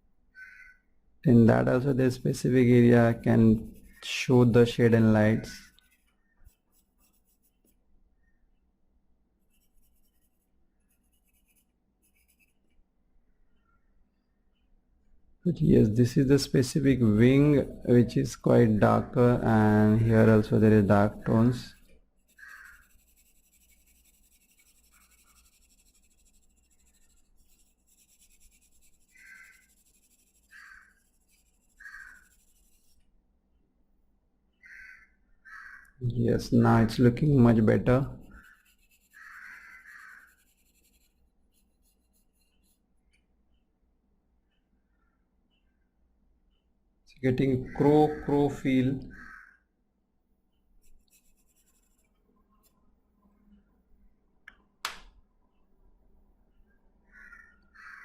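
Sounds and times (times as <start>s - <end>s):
crow cawing faintly: 0.3s - 0.9s, 21.8s - 23.0s, 29.0s - 32.6s, 34.6s - 36.0s, 38.3s - 40.6s, 44.8s - 45.8s, 47.6s - 49.7s, 57.0s - 58.0s
pencil scratching on paper: 1.8s - 7.8s, 9.4s - 12.7s, 16.5s - 33.0s, 38.1s - 42.8s, 50.8s - 52.8s.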